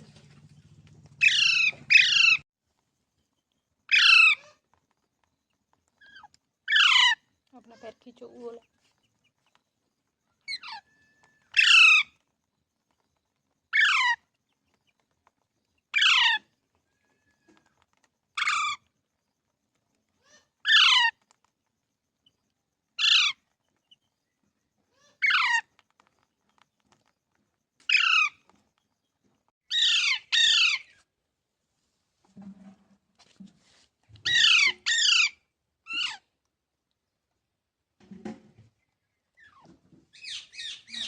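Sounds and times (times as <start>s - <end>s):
parakeet screeching calls: 1.2s - 2.4s, 3.9s - 4.6s, 6.1s - 7.2s, 10.5s - 12.2s, 13.7s - 14.2s, 16.0s - 16.4s, 18.4s - 18.8s, 20.2s - 21.2s, 23.0s - 23.4s, 25.0s - 25.7s, 27.9s - 28.4s, 29.7s - 31.0s, 34.2s - 36.2s, 40.2s - 41.0s.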